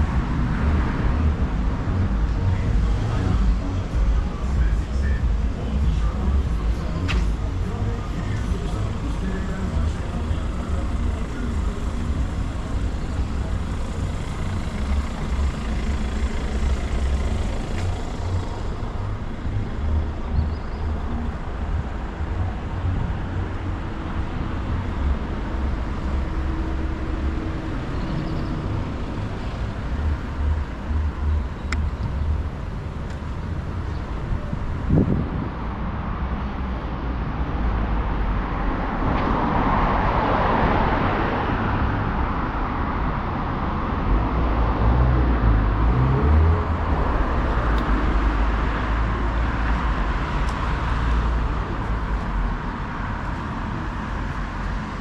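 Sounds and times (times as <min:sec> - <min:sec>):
low rumble of passing cars: 0:00.0 - 0:55.0.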